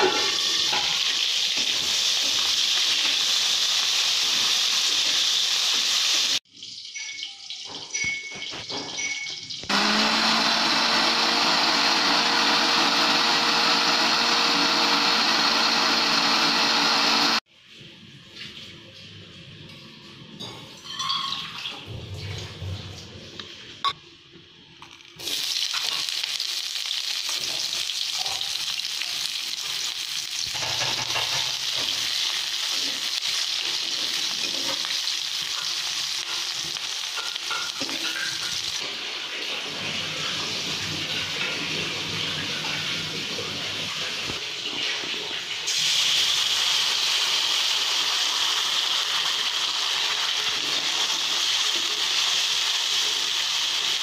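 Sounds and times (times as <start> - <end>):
onions sizzling in hot oil: 0.0 - 7.0, 25.2 - 39.7, 45.7 - 54.0.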